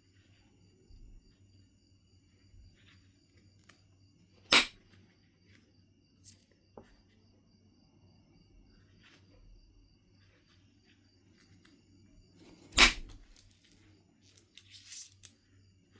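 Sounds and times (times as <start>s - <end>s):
strike on flint: 4.5s - 4.8s, 12.4s - 13.8s.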